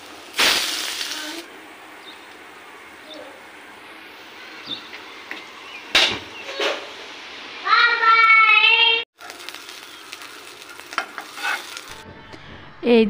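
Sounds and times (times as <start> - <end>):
oil popping: 0.0 - 1.4, 9.2 - 12.0
batter sizzling in hot oil: 0.0 - 1.5, 9.2 - 12.0
patties shallow-frying: 0.0 - 2.5, 9.2 - 12.0.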